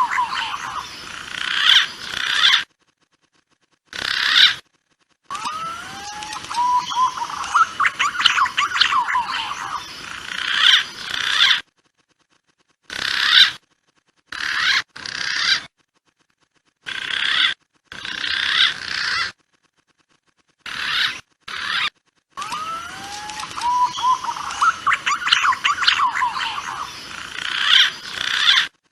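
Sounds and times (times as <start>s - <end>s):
pigeon whistled calls: 5.3s - 9.8s, 22.4s - 26.9s.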